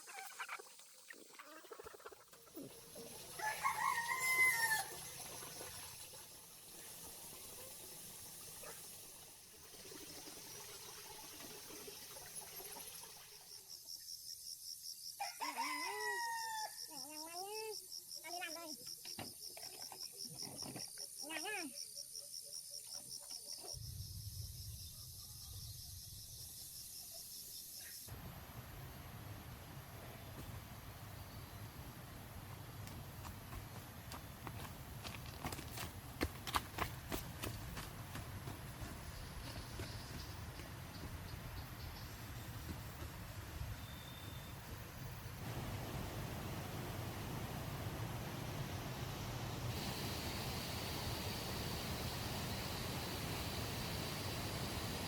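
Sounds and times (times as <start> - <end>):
rooster crowing: 3.4 - 5.0, 15.2 - 16.9
insects chirping: 9.8 - 28.1, 36.9 - 55.0.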